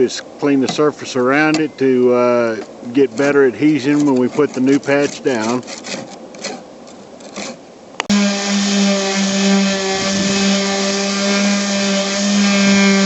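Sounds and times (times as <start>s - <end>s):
hand scrubbing: 2.4s - 6.6s, 7.2s - 7.6s
electric power tool running: 8.1s - 13.0s.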